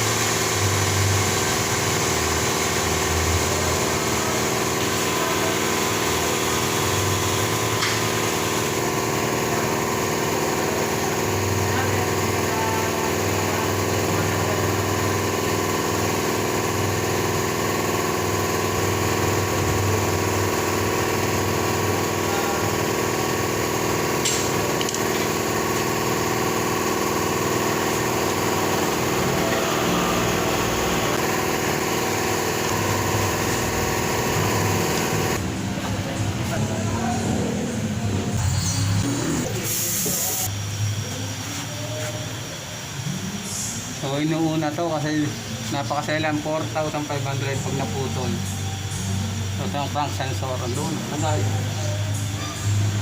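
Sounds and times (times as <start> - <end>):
car engine idling: 0.0 - 38.4.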